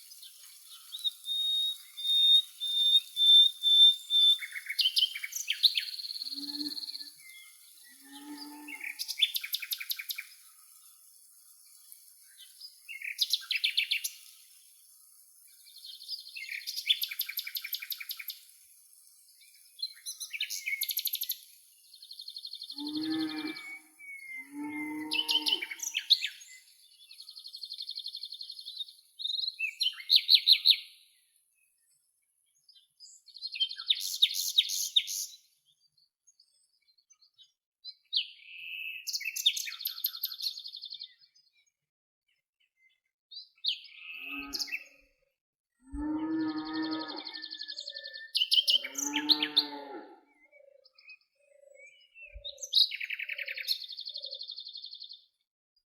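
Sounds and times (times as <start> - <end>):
faint steady hiss: 0.0 - 6.4, 7.0 - 22.2
songbirds trilling: 0.1 - 10.9, 22.0 - 26.6, 45.9 - 55.0
low drawn-out animal calls: 45.8 - 47.5.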